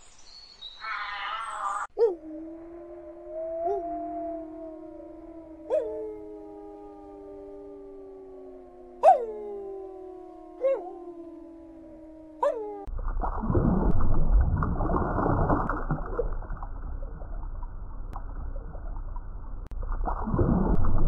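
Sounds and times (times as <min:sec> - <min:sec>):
wolves howling: 0:01.8 - 0:12.9
water rumbling and gurgling: 0:02.1 - 0:21.0.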